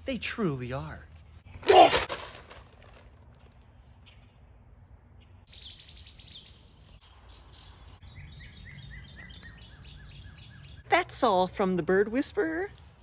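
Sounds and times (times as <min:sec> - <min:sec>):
birds singing: 0:05.2 - 0:11.0.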